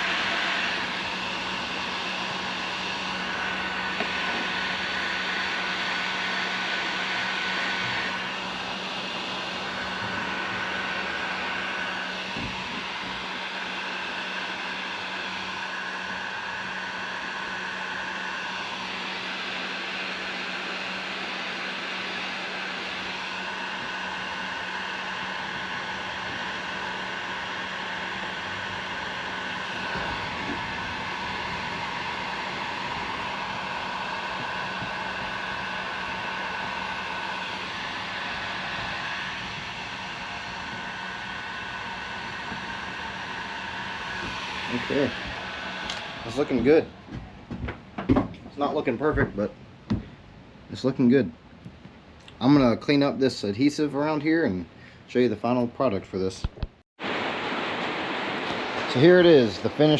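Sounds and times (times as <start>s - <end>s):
heat gun blowing hiss: 0.0s - 47.2s.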